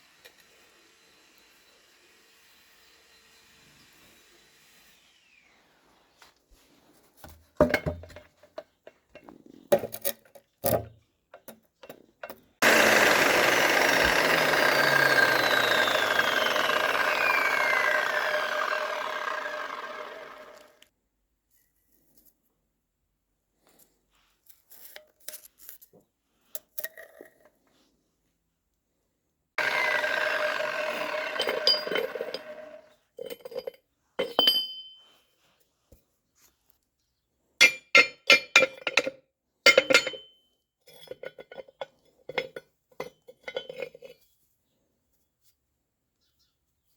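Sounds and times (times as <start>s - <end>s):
loud steady machine noise: 12.6s - 20.8s, 29.6s - 32.8s
steady mechanical ringing: 29.6s - 32.8s
metallic clinks of tools: 31.4s - 32.6s, 33.2s - 35.0s, 39.7s - 40.3s.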